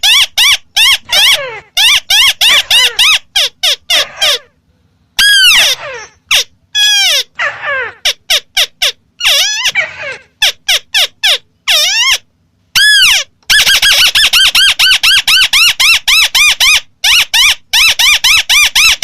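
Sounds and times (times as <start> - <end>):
bird calling harsh nasal notes: 0.0 - 19.0.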